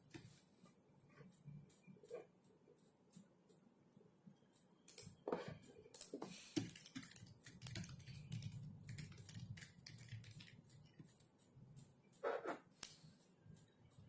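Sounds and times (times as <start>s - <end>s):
keyboard typing: 4.4s - 14.0s.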